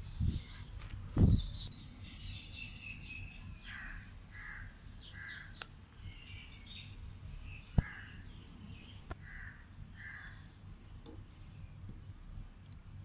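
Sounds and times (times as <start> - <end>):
short harsh bird calls: 7.4 - 8.3.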